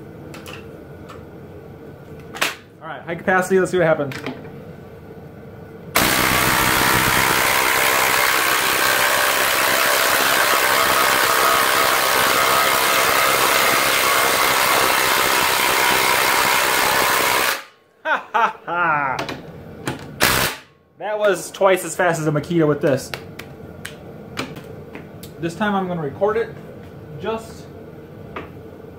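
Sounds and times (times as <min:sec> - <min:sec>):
impact driver hammering: 0:06.0 - 0:17.7, 0:20.2 - 0:20.6.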